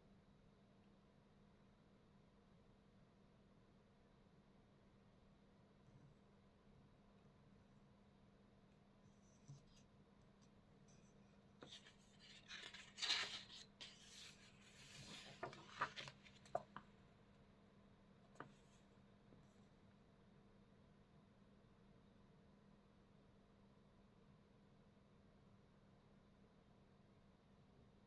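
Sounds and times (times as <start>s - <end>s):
scratching on paper: 10.9s - 16.7s.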